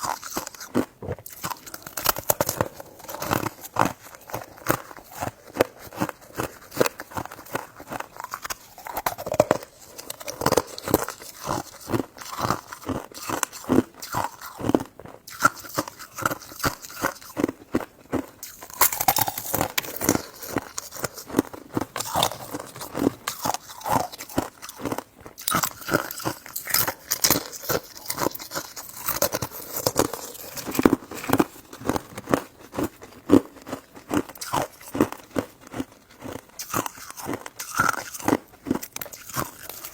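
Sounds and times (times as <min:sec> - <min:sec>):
person biting and chewing: 0:00.0 - 0:39.9
wet mouth clicks: 0:08.2 - 0:14.6, 0:18.4 - 0:31.0, 0:36.6 - 0:39.9.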